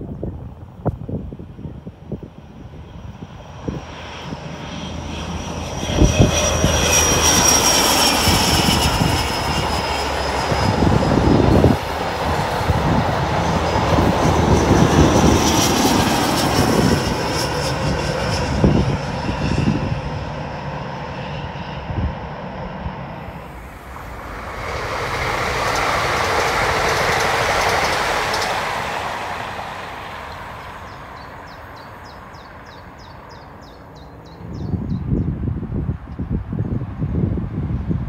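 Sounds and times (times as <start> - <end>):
diesel train engine noise: 0.0 - 34.5
high whine dropping in pitch: 23.1 - 32.5.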